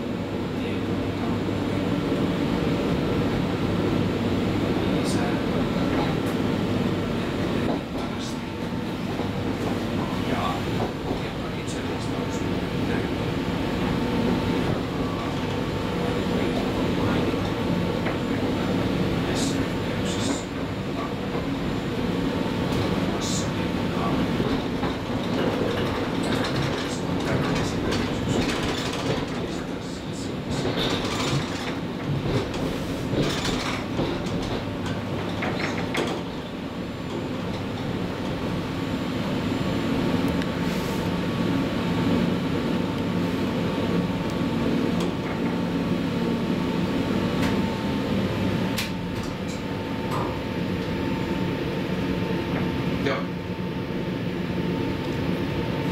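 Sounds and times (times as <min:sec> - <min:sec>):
constant electric hum: 0:00.0 - 0:55.9
wheels rumbling on rails: 0:04.3 - 0:43.3.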